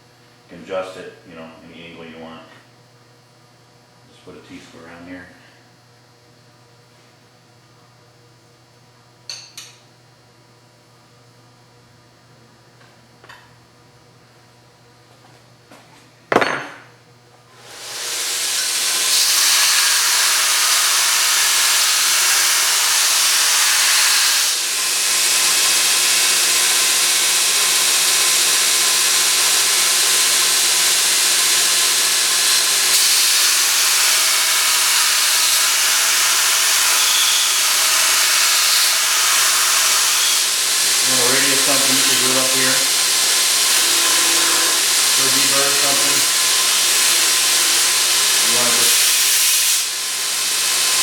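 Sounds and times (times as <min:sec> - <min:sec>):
belt grinder running with hiss: 0:17.5 - 0:51.0.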